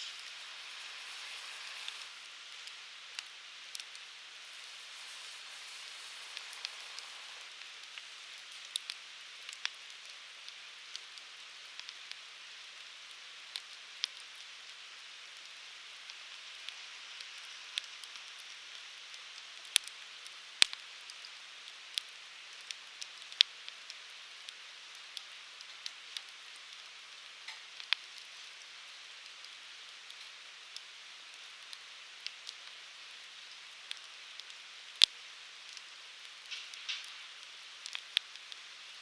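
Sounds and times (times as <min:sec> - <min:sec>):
flames hissing: 0:00.0 - 0:11.2
firewood crackles and pops: 0:00.0 - 0:39.0.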